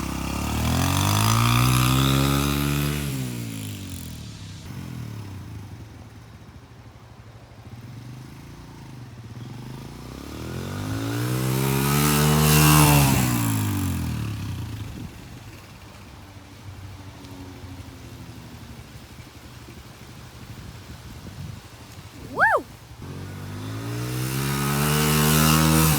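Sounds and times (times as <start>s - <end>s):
dirt bike riding by: 0.0s - 6.8s, 7.6s - 16.2s, 21.8s - 25.9s.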